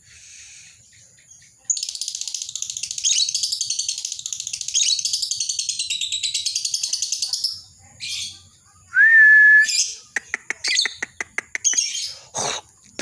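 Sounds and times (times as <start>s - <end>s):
bird chattering trill: 9.7s - 13.0s.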